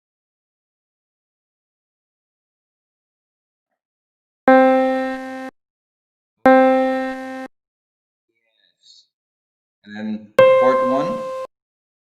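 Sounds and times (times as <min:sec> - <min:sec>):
pitched tone: 0:04.5 - 0:05.5, 0:06.5 - 0:07.5, 0:10.4 - 0:11.5.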